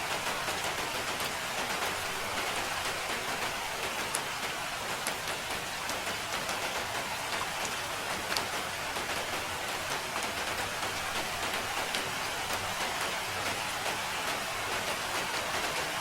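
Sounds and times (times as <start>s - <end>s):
steady rain hiss: 0.0s - 16.0s.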